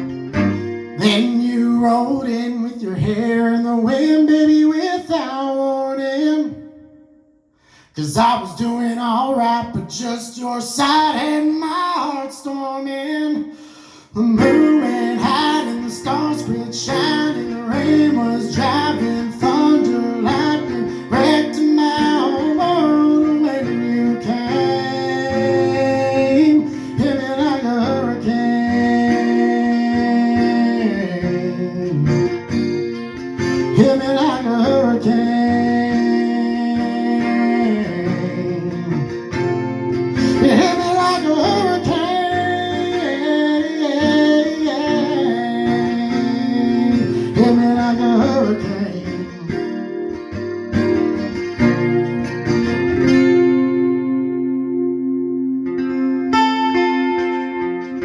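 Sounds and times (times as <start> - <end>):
acoustic guitar strumming: 0.0 - 58.0
person singing: 0.8 - 7.1, 7.8 - 52.0, 53.3 - 58.0.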